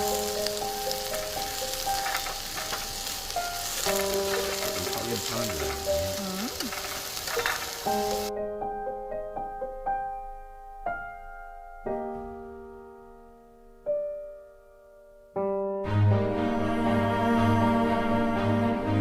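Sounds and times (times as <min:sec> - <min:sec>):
sizzling sound: 0:00.0 - 0:08.3
slow solo piano: 0:00.0 - 0:17.8.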